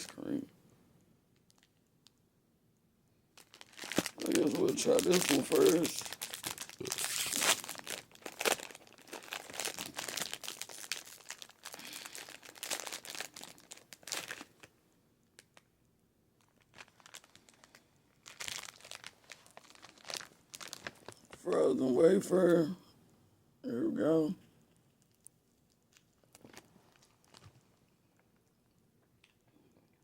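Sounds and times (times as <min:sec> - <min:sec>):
plastic wrapper tearing and crinkling: 0:01.4 - 0:01.9, 0:03.4 - 0:14.7, 0:16.4 - 0:21.4, 0:24.9 - 0:27.8.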